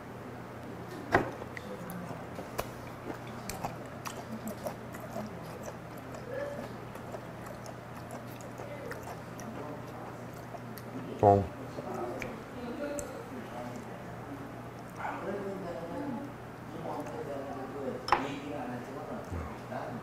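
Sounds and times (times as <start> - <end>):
mouth clicks chewing: 1.3 - 11.0, 11.8 - 13.9.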